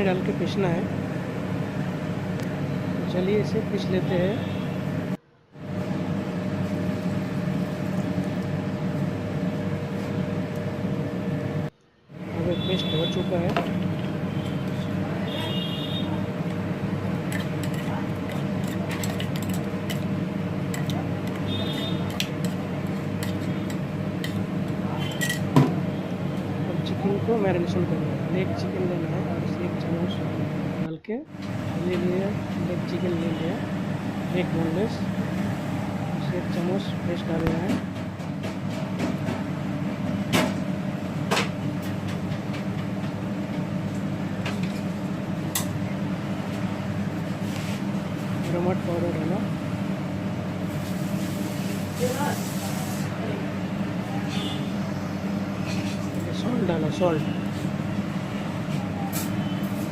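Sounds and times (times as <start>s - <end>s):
kitchen utensils clinking: 17.3s - 20.1s, 25.0s - 25.6s.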